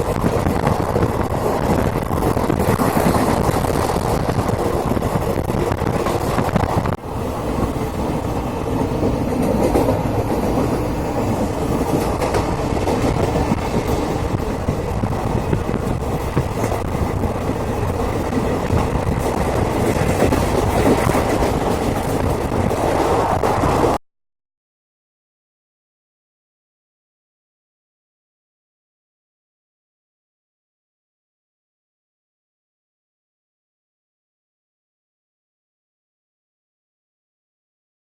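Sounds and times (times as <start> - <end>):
train wheels clickety-clack: 0.0 - 24.0.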